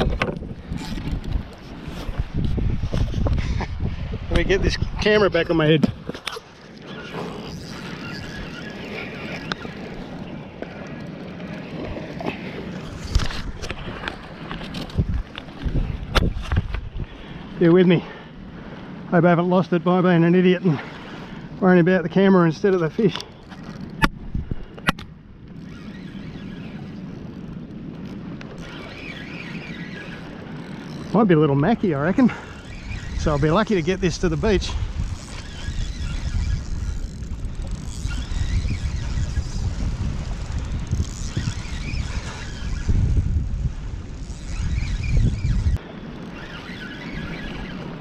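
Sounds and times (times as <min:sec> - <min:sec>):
camera rubbing against microphone: 0:00.0 - 0:10.2, 0:12.2 - 0:16.8, 0:32.5 - 0:45.8
wind: 0:00.0 - 0:48.0.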